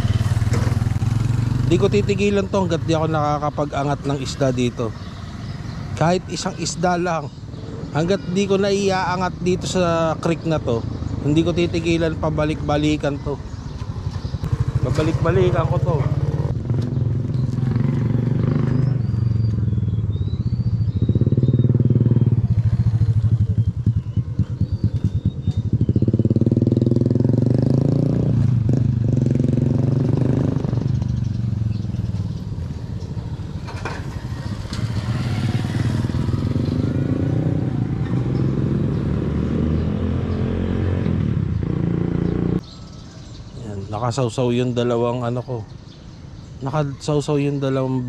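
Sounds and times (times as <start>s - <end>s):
motorcycle engine revving: 0.0s - 42.7s
faint bird chirps: 3.3s - 16.0s, 18.5s - 26.5s, 41.5s - 48.0s.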